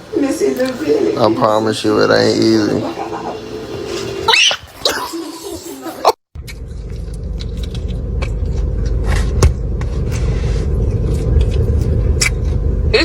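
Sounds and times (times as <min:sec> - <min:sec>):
low rumble: 0:06.4 - 0:13.0.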